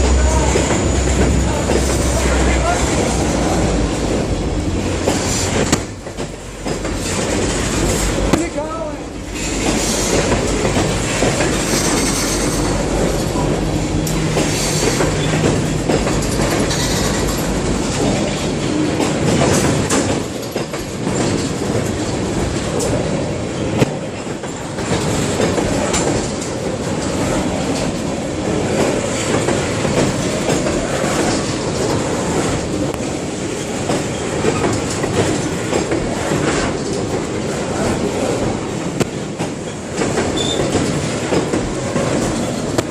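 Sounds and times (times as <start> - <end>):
train clanks: 0.0 - 42.9
train wheels clattering: 0.0 - 42.9
faint wheel squeal: 40.4 - 40.7.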